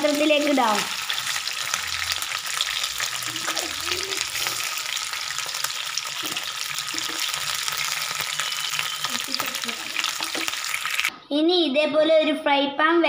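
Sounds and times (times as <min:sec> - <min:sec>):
chicken sizzling in hot oil: 0:00.0 - 0:11.1
spatula stirring in pan: 0:02.7 - 0:09.0.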